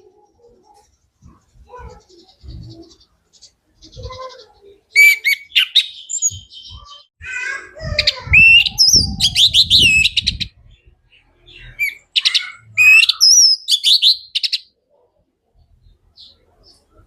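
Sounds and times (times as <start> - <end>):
thrush singing whistled phrases: 5.0 - 7.1, 8.1 - 10.6, 11.7 - 14.7.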